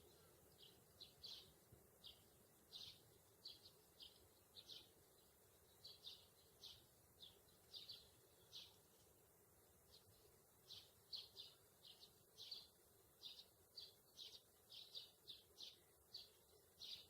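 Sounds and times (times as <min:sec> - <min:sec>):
faint high-pitched chirps: 0:00.0 - 0:09.0.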